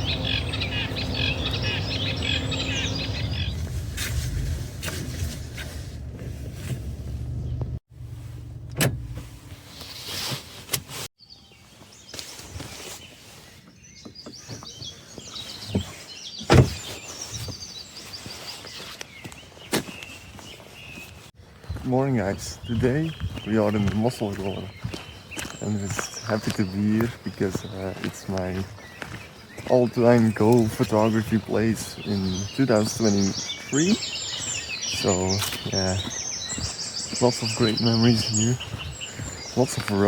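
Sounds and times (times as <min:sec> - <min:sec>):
small birds chirping: 0:00.0 - 0:04.4, 0:11.2 - 0:40.0
low steady rumble: 0:00.0 - 0:09.6.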